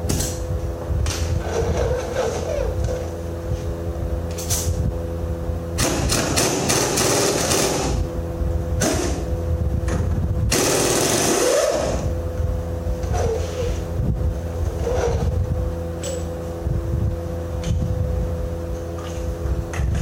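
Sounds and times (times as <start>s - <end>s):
engine running: 0.0s - 20.0s
pneumatic air hammer rattling: 1.0s - 3.2s, 4.3s - 4.8s, 5.8s - 8.1s, 8.8s - 9.3s, 9.9s - 12.1s, 14.6s - 15.4s.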